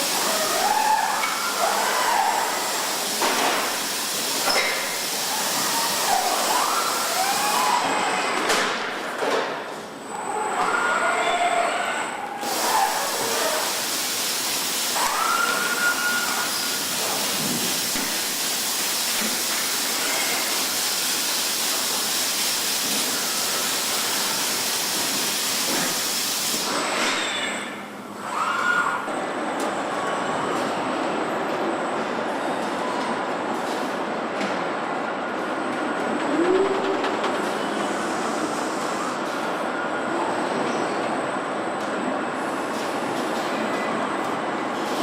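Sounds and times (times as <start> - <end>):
assembly line machinery hissing: 0.0 - 7.9, 12.3 - 28.3.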